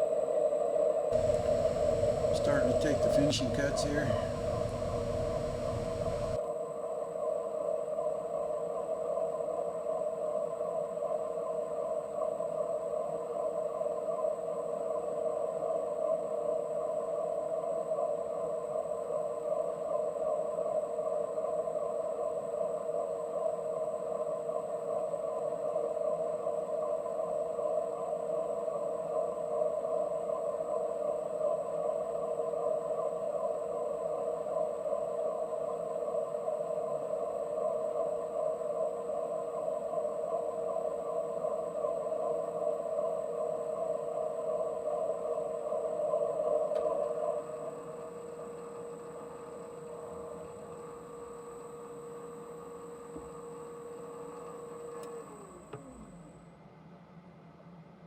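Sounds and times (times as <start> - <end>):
lathe tool cutting metal: 1.2 - 6.4
metal lathe humming: 1.2 - 6.4.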